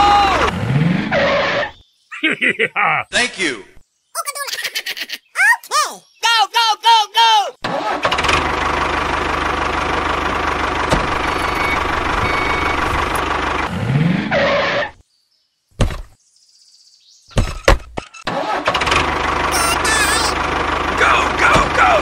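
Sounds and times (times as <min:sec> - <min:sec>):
tractor engine idling: 0:07.7 - 0:13.8, 0:18.6 - 0:22.0.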